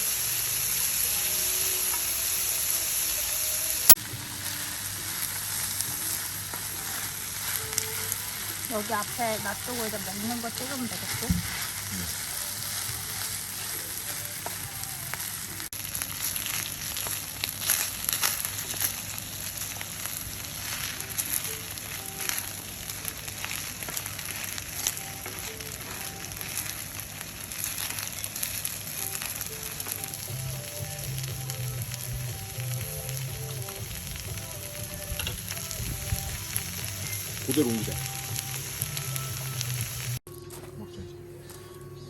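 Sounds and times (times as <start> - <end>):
food sizzling in a pan: 0.0 - 40.2
crackles and pops of frying: 0.0 - 40.3.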